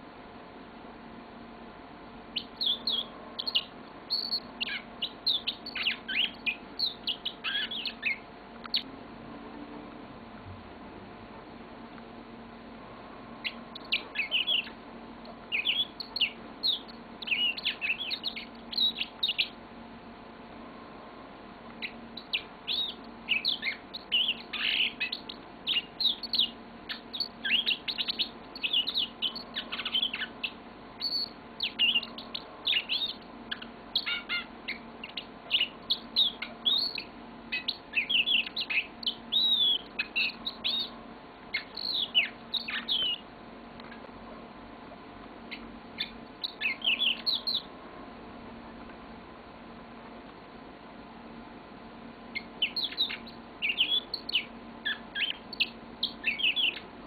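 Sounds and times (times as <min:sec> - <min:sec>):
canary singing chirps and trills: 0:02.3 - 0:08.9, 0:13.4 - 0:20.0, 0:21.7 - 0:44.1, 0:45.4 - 0:47.8, 0:52.2 - 0:57.0.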